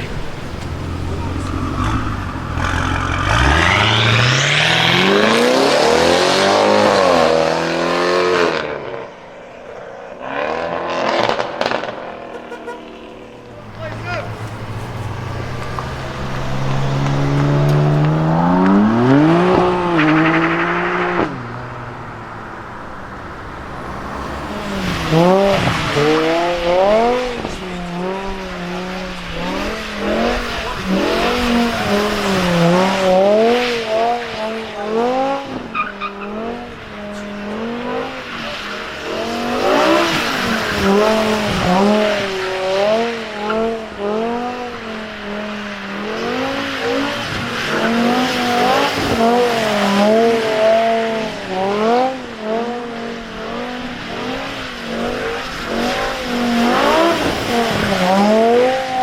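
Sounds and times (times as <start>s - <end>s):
tyres squealing: 0.0s - 7.4s, 10.2s - 42.6s
car engine revving: 0.0s - 59.0s.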